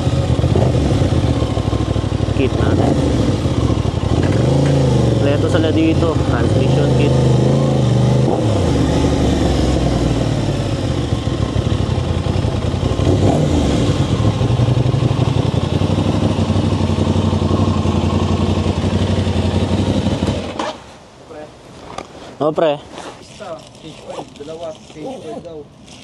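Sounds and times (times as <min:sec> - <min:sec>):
motorcycle engine running: 0:00.0 - 0:20.6.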